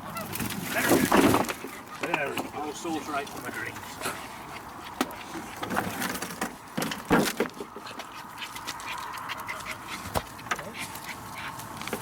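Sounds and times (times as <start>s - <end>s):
knocks of wood and debris: 0.4s - 2.5s, 5.0s - 7.7s
dogs panting: 1.6s - 6.0s, 7.5s - 12.0s.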